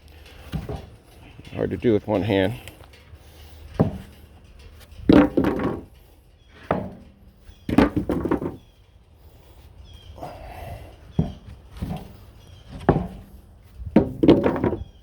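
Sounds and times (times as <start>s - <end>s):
wooden boards thunking: 0.5s - 1.0s, 3.8s - 4.1s, 5.0s - 5.9s, 6.6s - 7.1s, 7.7s - 8.7s, 11.2s - 15.0s.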